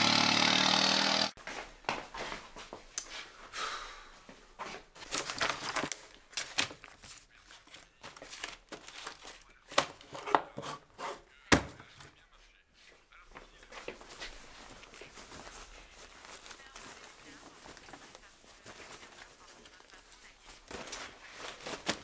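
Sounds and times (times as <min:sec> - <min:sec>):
paper rustling and crinkling: 0:04.8 - 0:10.8, 0:13.4 - 0:22.0.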